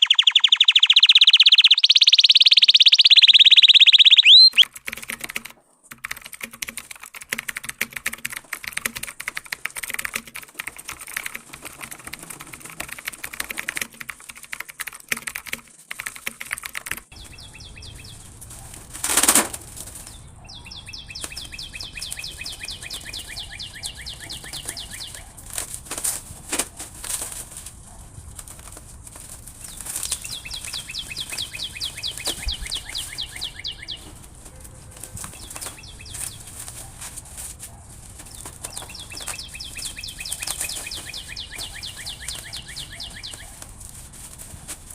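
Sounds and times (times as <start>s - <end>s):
canary singing trills: 0.0s - 4.7s, 17.1s - 18.7s, 20.0s - 25.4s, 29.6s - 36.9s, 38.3s - 43.6s.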